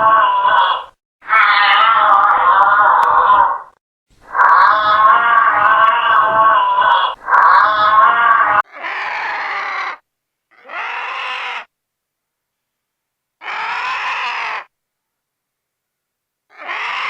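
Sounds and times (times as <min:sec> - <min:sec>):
farm animal calling: 0:00.0 - 0:10.0, 0:10.6 - 0:11.7, 0:13.4 - 0:14.7, 0:16.6 - 0:17.0.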